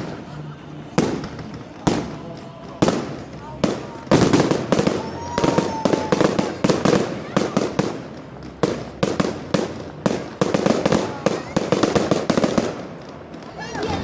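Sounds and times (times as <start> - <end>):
fireworks bangs and cracks: 0.0 - 14.0
firework whistle: 4.8 - 6.6.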